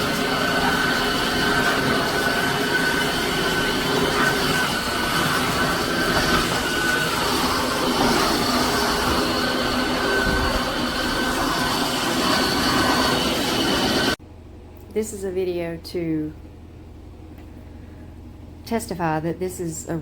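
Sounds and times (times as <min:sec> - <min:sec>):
floor washer motor whine: 0:00.0 - 0:14.2.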